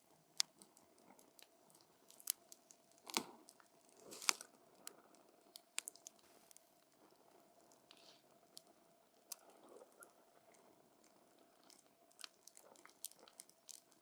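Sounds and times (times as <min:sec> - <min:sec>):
campfire crackling and popping: 0:05.6 - 0:06.6.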